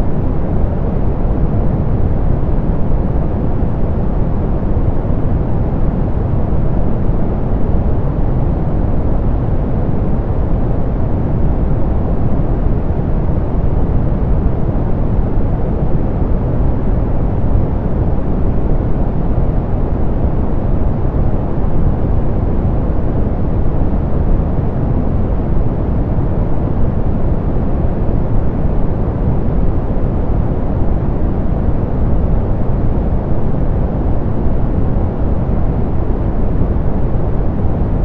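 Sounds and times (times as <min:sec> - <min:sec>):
deep pink noise: 0:00.0 - 0:38.0.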